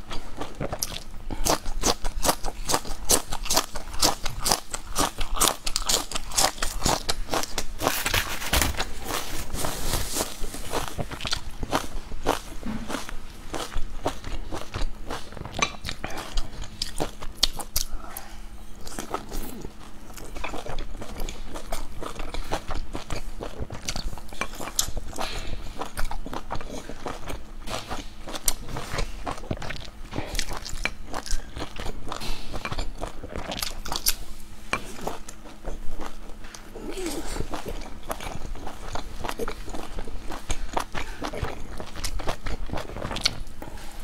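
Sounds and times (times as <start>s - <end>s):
chewing and biting dumplings: 0.0s - 44.0s.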